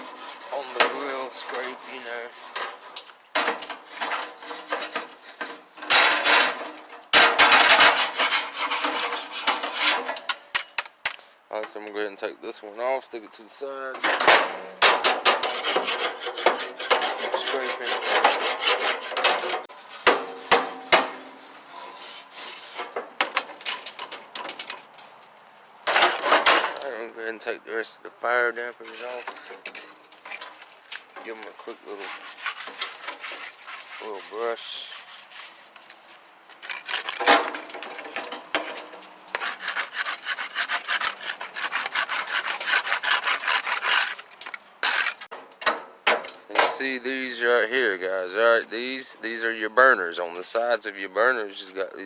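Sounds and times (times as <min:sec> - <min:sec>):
wire brush scraping metal grill: 0:00.0 - 0:10.4, 0:14.0 - 0:25.2, 0:28.8 - 0:45.4.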